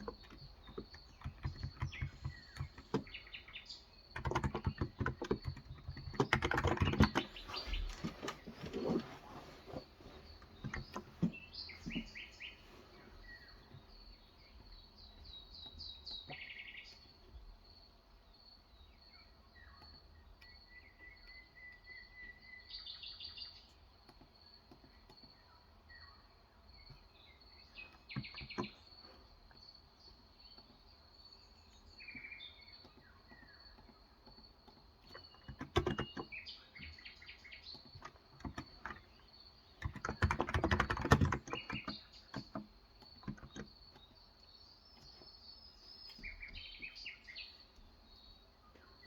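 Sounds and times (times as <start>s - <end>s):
typing on keyboard: 0.0s - 3.1s, 4.1s - 7.6s, 33.3s - 36.3s, 37.8s - 39.2s, 39.8s - 44.1s
birds chirping: 0.0s - 49.0s.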